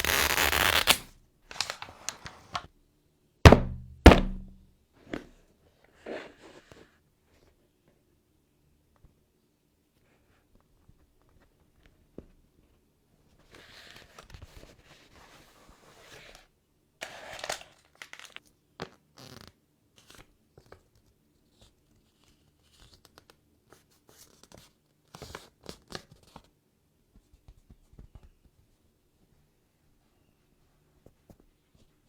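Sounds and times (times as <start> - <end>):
packaging tearing: 0.0 - 1.9
small clicks and crinkles: 17.4 - 18.6, 20.0 - 26.5.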